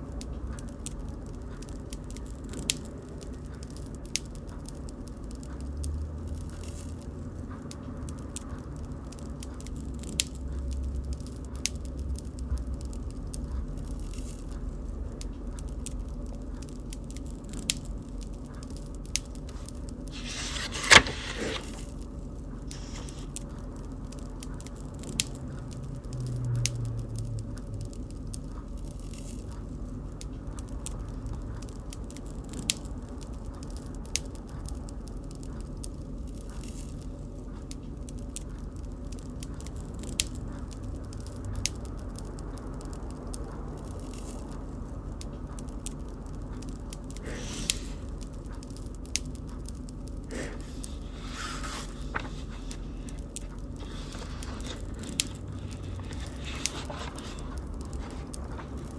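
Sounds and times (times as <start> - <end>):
bonfire flames rushing: 50.2 - 58.9
wood popping and crackling: 50.3 - 58.9.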